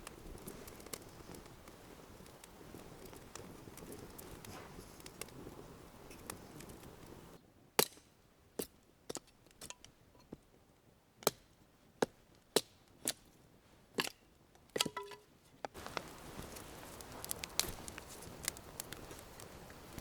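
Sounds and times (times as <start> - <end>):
steady outdoor hiss: 0.0 - 8.6, 15.2 - 20.0.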